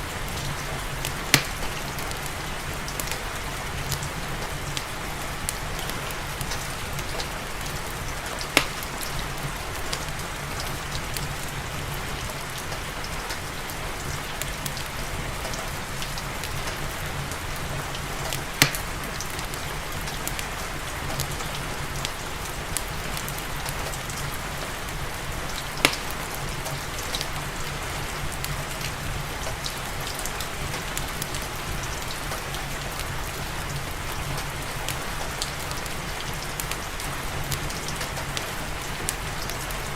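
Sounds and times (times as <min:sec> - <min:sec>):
fireplace crackling: 0:00.0 - 0:39.9
steady rain falling: 0:00.0 - 0:39.9
loud sharp fire pops: 0:01.3 - 0:01.8, 0:18.6 - 0:18.9, 0:25.8 - 0:26.2.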